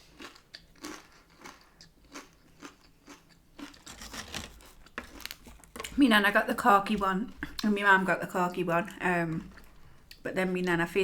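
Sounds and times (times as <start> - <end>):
person crunching tortilla chips: 0.0 - 5.7.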